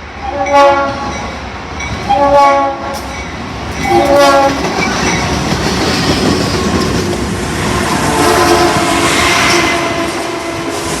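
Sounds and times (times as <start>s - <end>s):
train horn held chord: 0.2s - 1.1s, 2.1s - 3.0s, 3.9s - 4.6s, 7.7s - 11.0s
train wheels clattering on rails: 2.9s - 11.0s.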